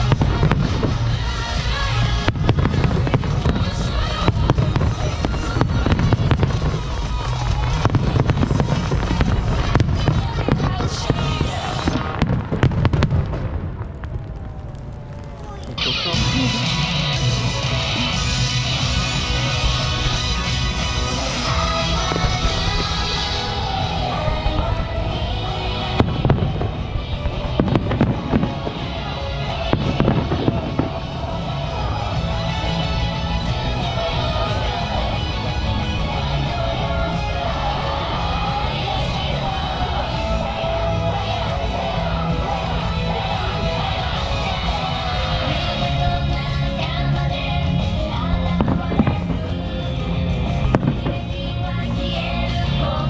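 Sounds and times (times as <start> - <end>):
music: 0.0 - 13.6, 15.7 - 53.0
fireworks bangs and crackles: 0.0 - 53.0
low rumble of bursts: 0.0 - 53.0.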